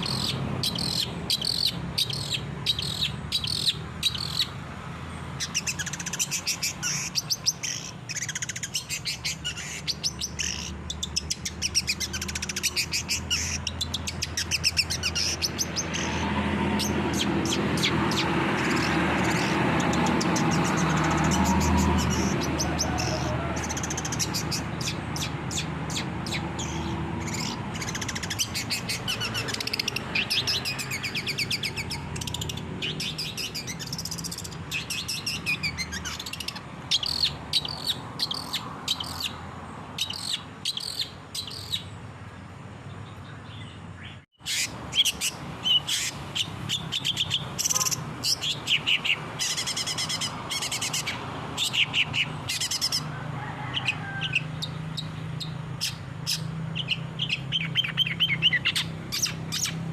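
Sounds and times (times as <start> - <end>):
bird singing chattering phrases: 0.0 - 59.9.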